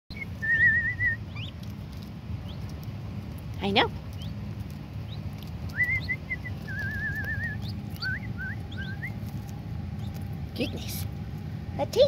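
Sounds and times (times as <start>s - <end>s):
young birds whistled chirps: 0.1s - 1.6s, 4.2s - 4.4s, 5.1s - 9.2s
low steady hum: 0.1s - 12.0s.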